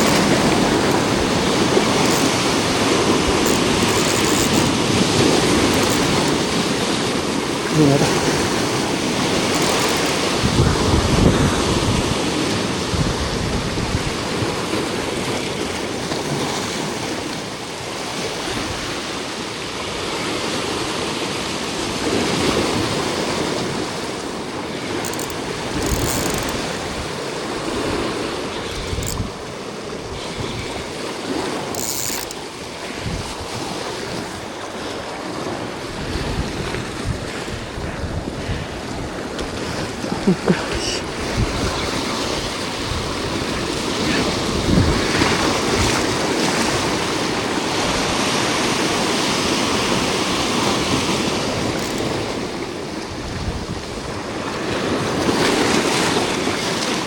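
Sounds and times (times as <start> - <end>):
sea waves washing against rocks: 0.0 - 57.0
wind buffeting microphone: 8.2 - 15.4, 32.8 - 34.4, 35.4 - 40.2, 41.0 - 48.2.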